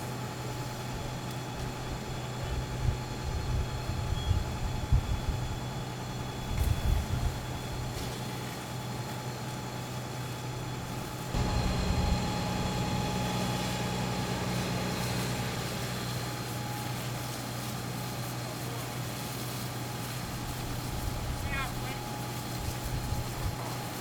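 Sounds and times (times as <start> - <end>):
fire engine humming: 0.0 - 24.0
low buffeting rumble: 10.7 - 18.1.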